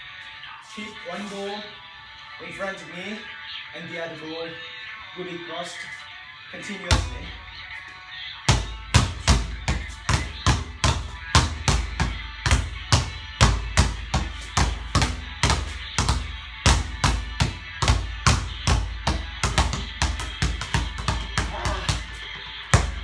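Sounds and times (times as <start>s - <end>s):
basketballs dribbling hard: 6.9s - 7.5s, 8.5s - 23.0s.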